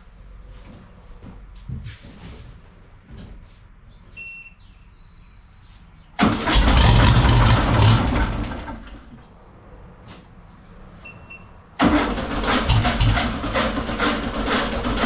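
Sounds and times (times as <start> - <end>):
car engine cranking on starter: 6.2 - 9.2, 11.8 - 15.0.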